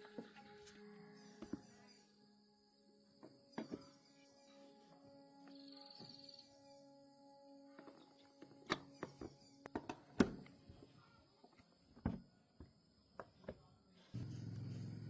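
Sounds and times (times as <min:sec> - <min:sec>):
steady low hum: 0:14.2 - 0:15.0.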